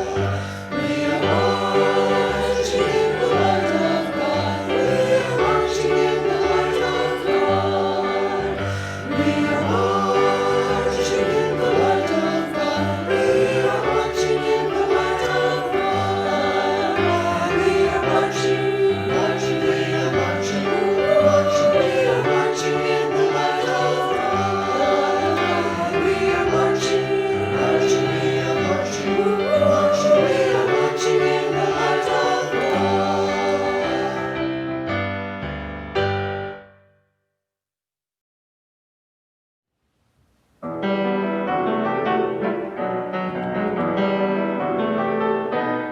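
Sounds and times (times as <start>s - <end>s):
choir singing a hymn: 0.0s - 34.8s.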